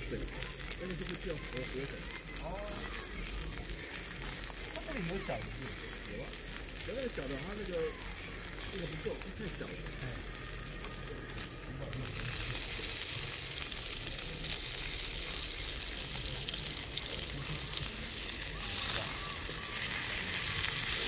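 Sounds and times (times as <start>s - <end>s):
meat sizzling on a grill: 0.0s - 21.0s.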